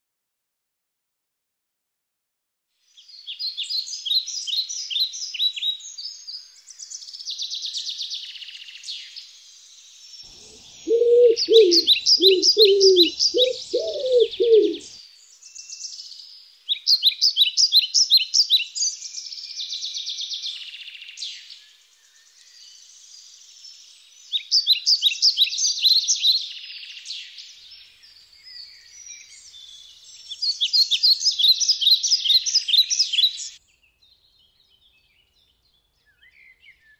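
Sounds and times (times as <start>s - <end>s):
small birds chirping and trilling: 2.9s - 36.9s
low cooing calls: 10.3s - 14.9s.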